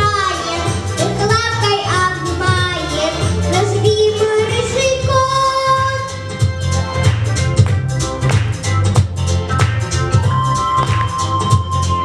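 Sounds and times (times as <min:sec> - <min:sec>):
girl singing: 0:00.0 - 0:06.2
pop accompaniment with bass and beat: 0:00.0 - 0:12.0.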